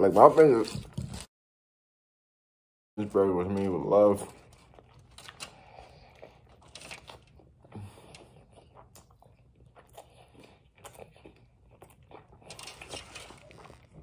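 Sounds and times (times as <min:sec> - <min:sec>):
person chewing a burger: 0:04.3 - 0:14.0.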